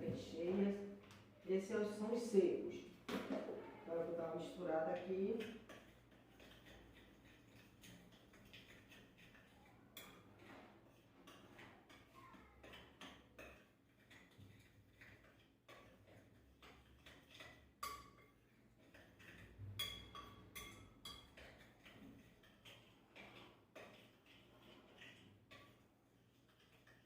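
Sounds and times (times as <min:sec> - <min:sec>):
stirring dry ingredients in bowl: 0:00.0 - 0:27.0
clinks against bowl: 0:17.3 - 0:21.9.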